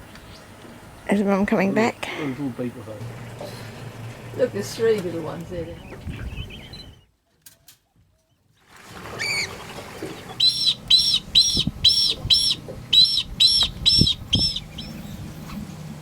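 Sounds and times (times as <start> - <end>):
bird piping notes: 5.8 - 7.0, 10.2 - 15.6.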